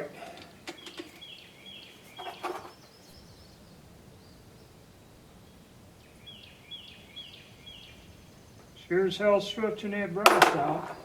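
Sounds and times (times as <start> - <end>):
bird calling high notes: 0.0 - 11.0
faint outdoor background: 0.0 - 11.0
sharp clicks: 0.2 - 1.3.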